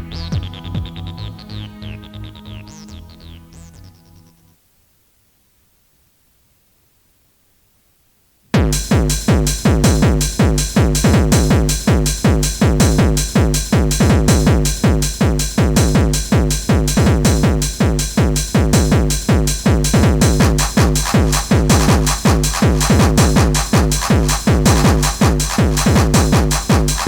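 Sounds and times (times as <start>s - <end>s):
fast techno track: 8.6s - 27.0s
pounding kick drum: 8.6s - 27.0s
synth stabs: 19.9s - 27.0s.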